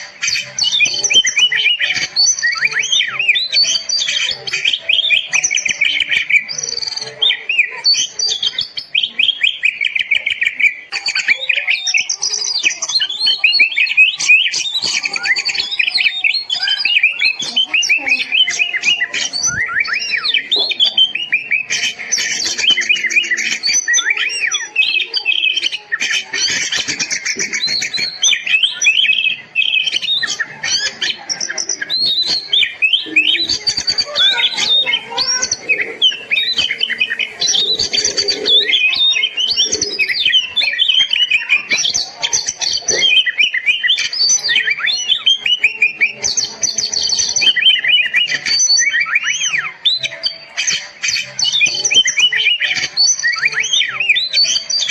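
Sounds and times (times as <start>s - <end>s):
bird singing whistles and trills: 0.0s - 54.9s.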